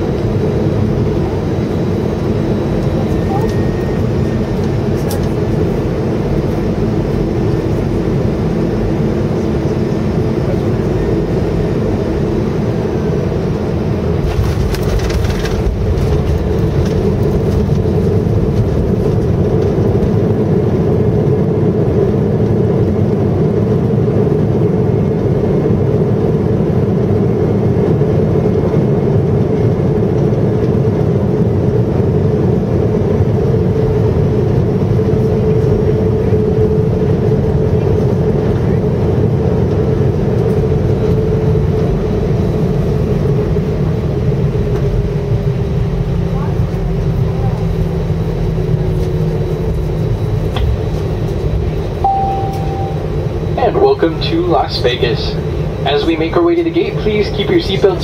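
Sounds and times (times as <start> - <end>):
engine and airflow noise: 0.0 - 58.0
humming tone: 52.0 - 53.6.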